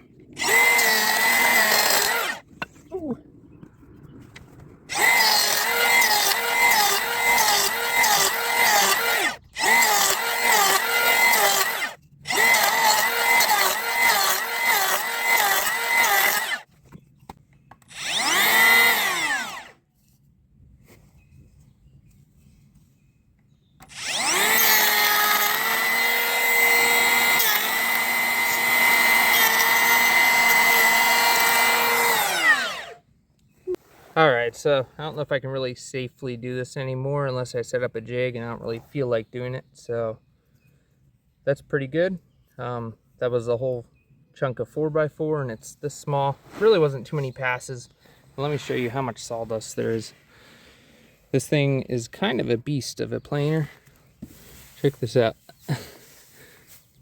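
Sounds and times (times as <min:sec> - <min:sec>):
electric planer whining: 0:00.4 - 0:02.4, 0:04.9 - 0:16.6, 0:17.9 - 0:19.7, 0:23.8 - 0:33.0.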